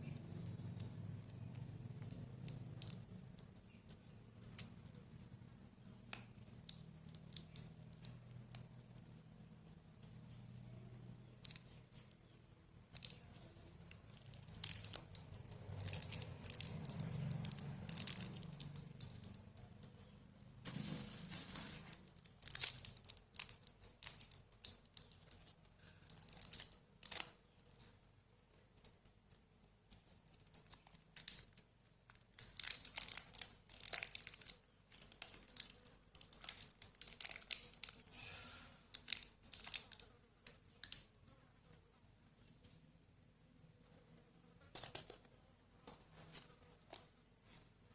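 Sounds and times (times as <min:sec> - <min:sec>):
wrappers crinkling and tearing: 0:12.9 - 0:19.4, 0:20.7 - 0:27.9, 0:32.3 - 0:38.1, 0:38.9 - 0:40.1.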